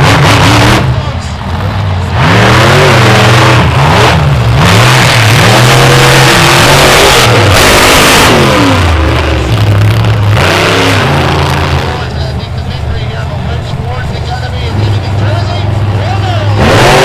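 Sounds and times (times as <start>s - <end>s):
monster truck engines revving: 0.0s - 17.0s.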